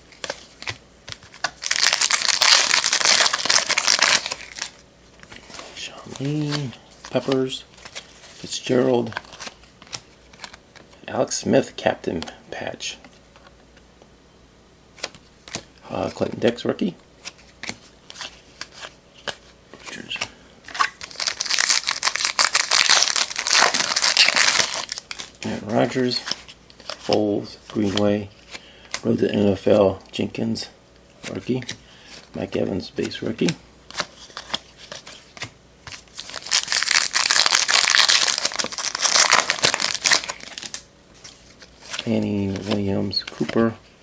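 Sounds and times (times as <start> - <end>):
wrapper tearing and crinkling: 1.3 - 4.8, 20.8 - 25.4, 36.0 - 40.8
cards handled with clicks: 9.0 - 11.0.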